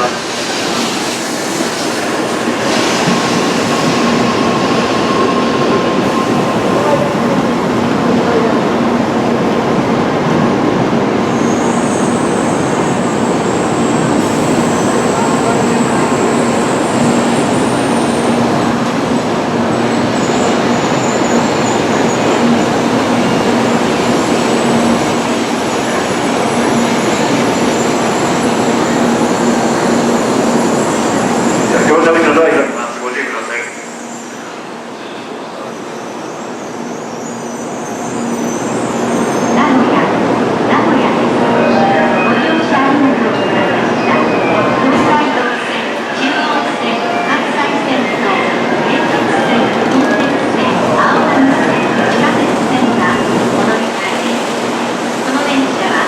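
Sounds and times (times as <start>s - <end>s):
train running noise: 0.0s - 56.0s.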